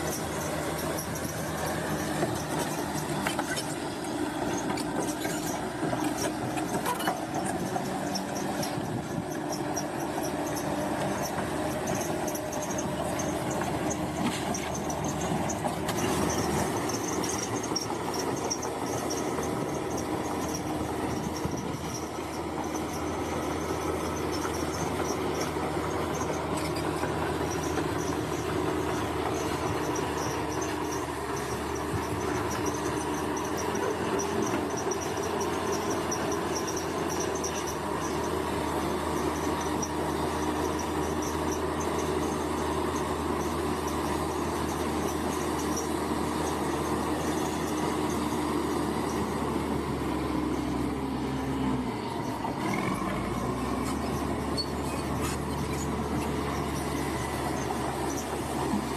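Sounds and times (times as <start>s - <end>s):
bulldozer diesel engine running: 0.0s - 58.9s
insects chirping: 14.7s - 58.6s.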